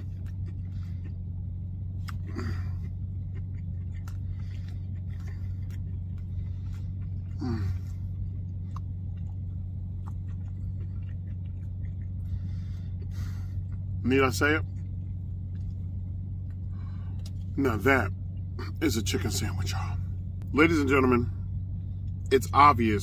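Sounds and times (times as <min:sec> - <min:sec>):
man chewing: 0:00.0 - 0:17.6
car cabin hum: 0:00.0 - 0:23.0
man humming mmm: 0:07.4 - 0:08.0.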